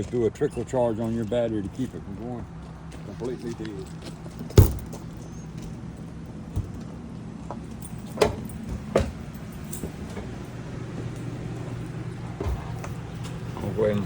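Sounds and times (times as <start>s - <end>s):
low mechanical hum: 0.0s - 14.0s
sharp knocks: 4.6s - 5.0s.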